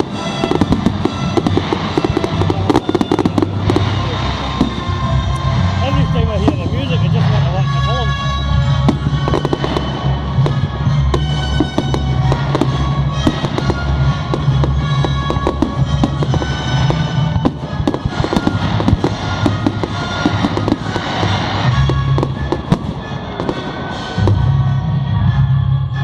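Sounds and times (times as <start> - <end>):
fireworks bangs and crackling: 0.0 - 26.0
loud music with pulsing bass: 1.6 - 20.7.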